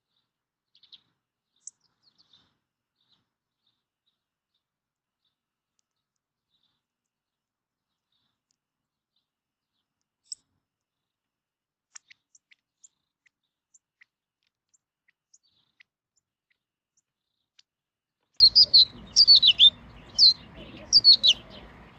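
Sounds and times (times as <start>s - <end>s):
songbirds chirping: 0.0s - 17.7s, 18.3s - 21.9s
faint high bird ticks: 0.7s - 3.2s, 5.7s - 7.2s, 7.9s - 8.7s, 9.8s - 11.0s, 11.9s - 17.7s.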